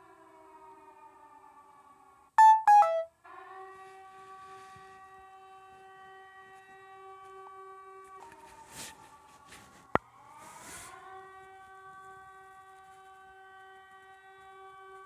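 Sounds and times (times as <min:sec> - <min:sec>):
short synthesizer notes: 0:02.4 - 0:03.1.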